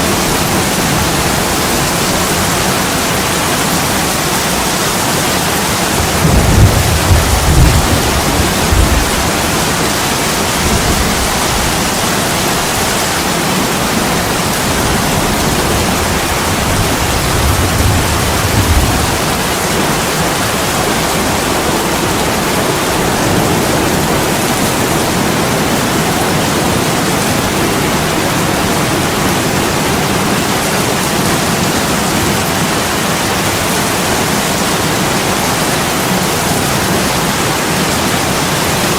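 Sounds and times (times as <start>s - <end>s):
thunder rumbling: 0.0s - 30.2s
heavy rain: 0.0s - 38.9s.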